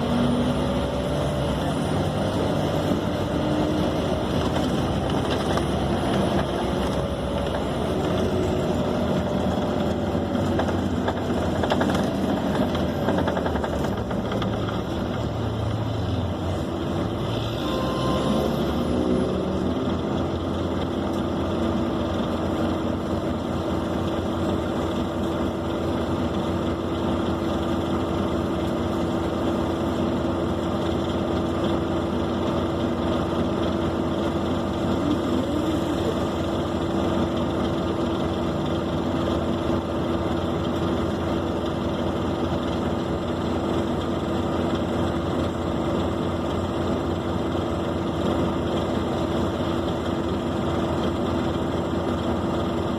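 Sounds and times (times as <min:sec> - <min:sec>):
bus diesel engine drone: 0:00.0 - 0:52.9
road noise: 0:00.0 - 0:52.9
constant hum: 0:33.4 - 0:41.3.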